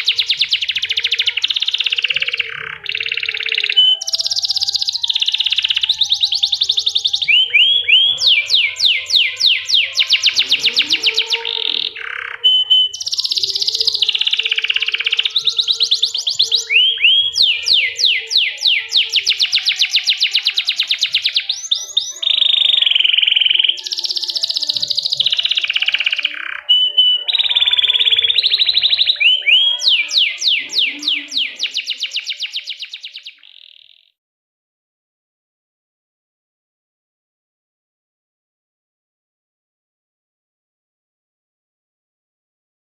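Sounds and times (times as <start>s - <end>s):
canary singing trills: 0.0s - 34.2s.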